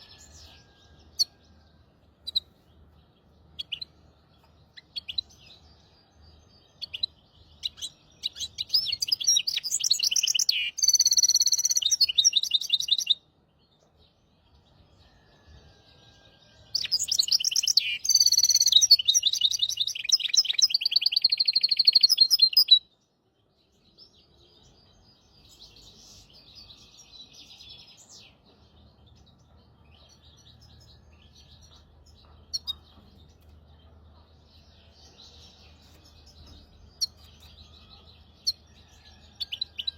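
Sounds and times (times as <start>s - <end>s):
finch singing trills: 6.8s - 13.2s, 16.7s - 22.8s.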